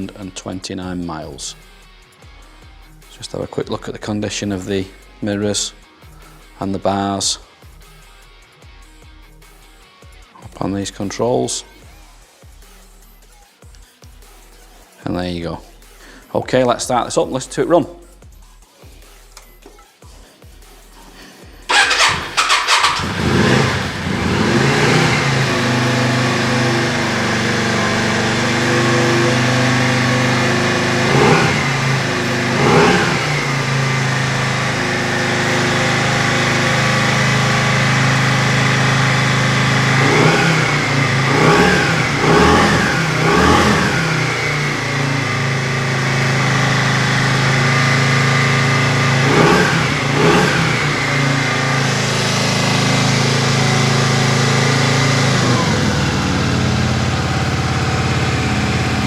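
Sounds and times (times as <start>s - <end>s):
motorcycle engine idling and revving: 21.7s - 59.0s.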